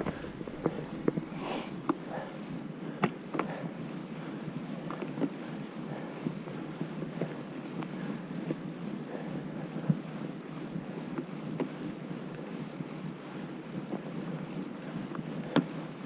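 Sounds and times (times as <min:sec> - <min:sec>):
wind on microphone: 0:00.0 - 0:02.7.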